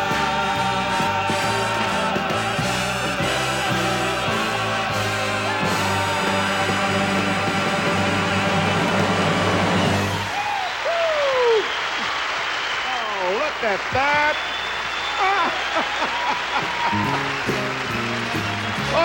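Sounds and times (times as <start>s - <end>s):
band playing: 0.0s - 10.6s, 16.7s - 19.0s.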